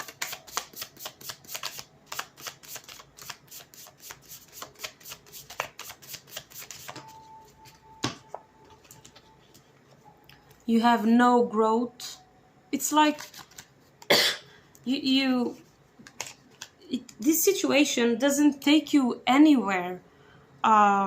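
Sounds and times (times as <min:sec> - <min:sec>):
cards being shuffled: 0:00.0 - 0:07.2, 0:13.1 - 0:13.7, 0:15.4 - 0:17.2.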